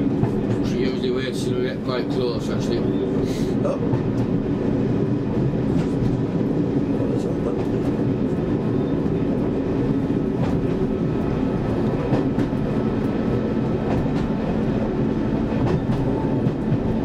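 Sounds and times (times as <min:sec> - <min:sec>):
train engine rumble: 0:00.0 - 0:17.0.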